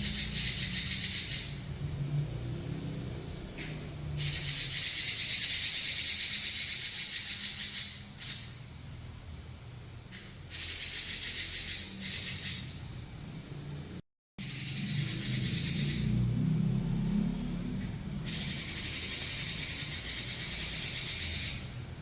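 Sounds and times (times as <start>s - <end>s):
bird singing buzzy trills: 0.0s - 2.0s, 3.6s - 8.9s, 10.1s - 13.0s, 14.4s - 16.4s, 17.8s - 22.0s.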